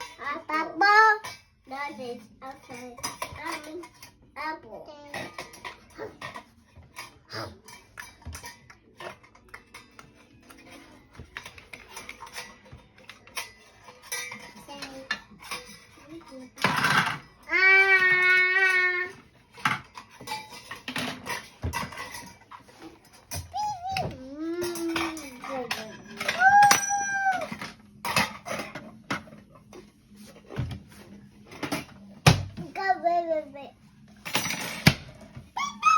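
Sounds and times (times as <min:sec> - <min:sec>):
utensils clinking against dishes: 0:00.0 - 0:33.0, 0:33.8 - 0:35.9
child squealing: 0:26.4 - 0:27.5, 0:35.6 - 0:35.9.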